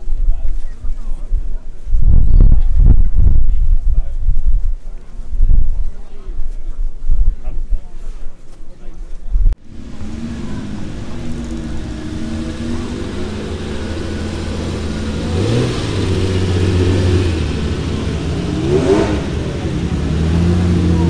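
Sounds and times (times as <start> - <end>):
car engine running at low revs: 9.4 - 21.0.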